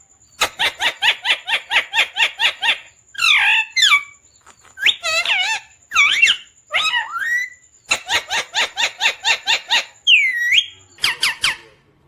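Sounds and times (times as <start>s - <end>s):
parrot calling: 0.3s - 11.8s
parrot squawks: 4.8s - 11.7s.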